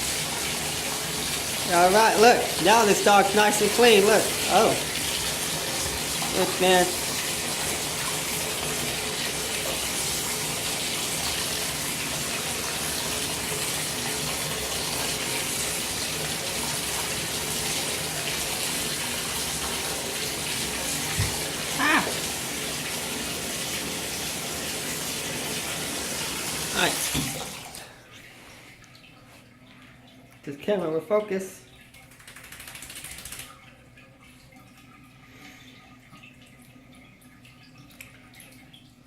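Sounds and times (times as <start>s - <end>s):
water running into bathtub: 0.0s - 39.0s
person speaking: 1.6s - 4.9s, 6.2s - 7.0s, 21.8s - 22.2s, 26.7s - 27.3s, 30.4s - 31.7s.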